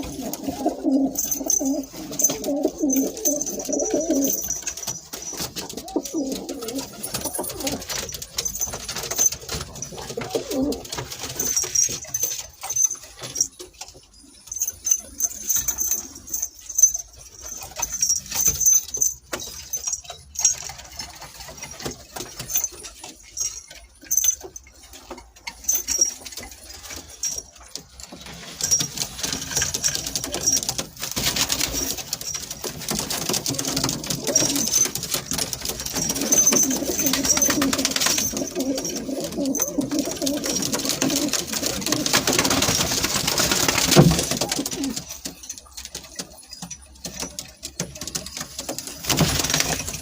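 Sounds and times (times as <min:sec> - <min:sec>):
pigeons cooing: 0:00.0 - 0:08.0, 0:09.8 - 0:11.2, 0:33.4 - 0:42.6, 0:44.0 - 0:45.2.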